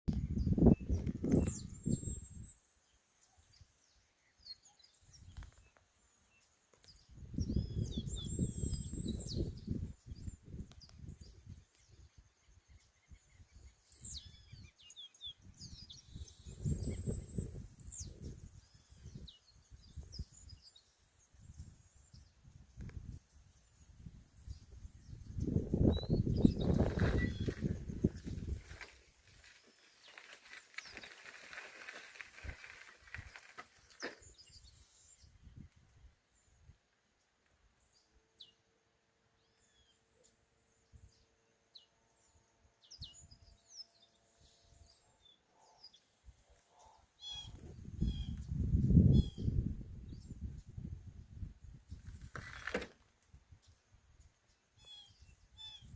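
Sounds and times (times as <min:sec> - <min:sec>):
birds chirping: 0:00.2 - 0:35.8.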